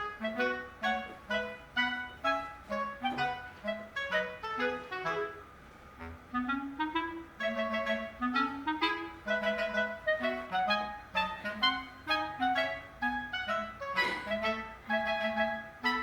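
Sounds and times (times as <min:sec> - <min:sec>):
light bouncy background music: 0:00.0 - 0:16.0.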